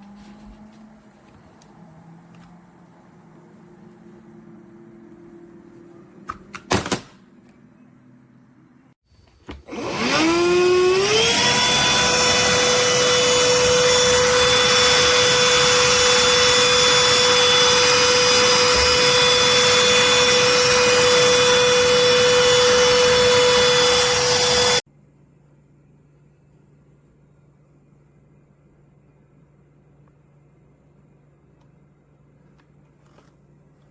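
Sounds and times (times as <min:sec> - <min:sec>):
handheld vacuum motor whine: 0:09.2 - 0:24.8.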